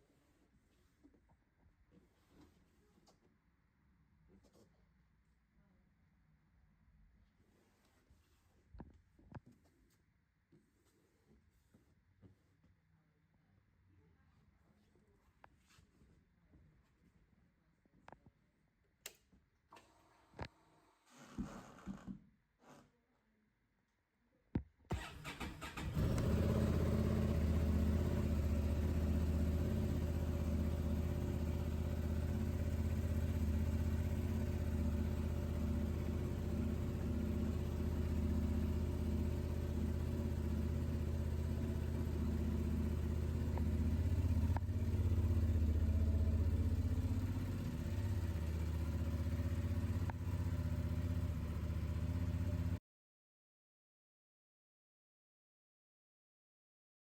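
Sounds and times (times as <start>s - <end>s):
motorcycle engine cranking and idling: 24.9s - 52.8s.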